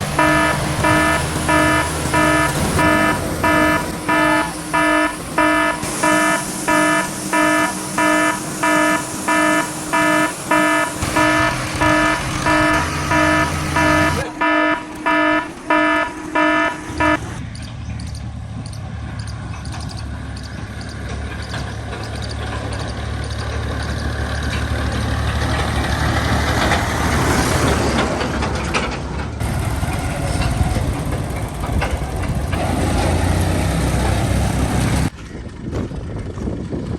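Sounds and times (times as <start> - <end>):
electronic beeper: 0.0 - 17.4
engine drone: 0.0 - 35.3.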